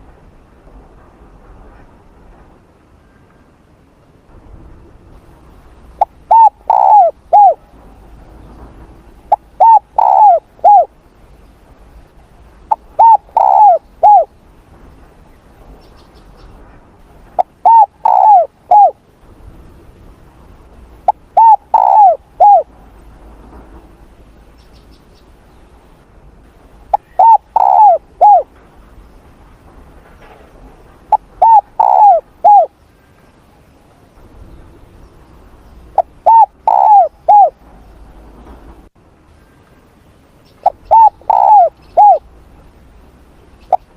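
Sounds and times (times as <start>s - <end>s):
dove cooing: 6.0s - 7.7s, 9.3s - 11.0s, 12.7s - 14.3s, 17.4s - 19.0s, 21.1s - 22.7s, 26.9s - 28.5s, 31.1s - 32.8s, 36.0s - 37.6s, 40.6s - 42.3s.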